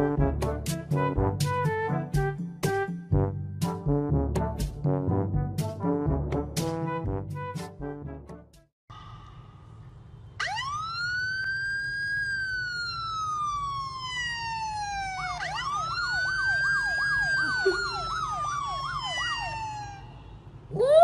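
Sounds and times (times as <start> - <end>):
electronic siren wailing: 10.4 - 21.0
siren yelping warble: 10.4 - 21.0.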